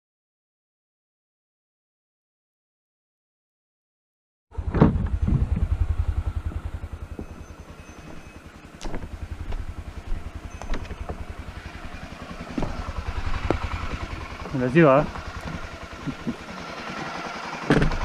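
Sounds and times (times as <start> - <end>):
motorcycle engine running: 4.5 - 18.0
sharp knocks: 12.5 - 14.5, 17.7 - 18.0.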